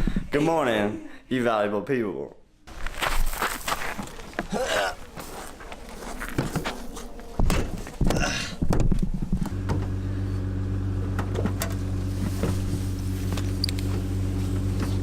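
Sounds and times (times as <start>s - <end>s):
knocks and rustles: 6.3s - 10.0s, 11.0s - 15.0s
vehicle engine idling: 9.4s - 15.0s.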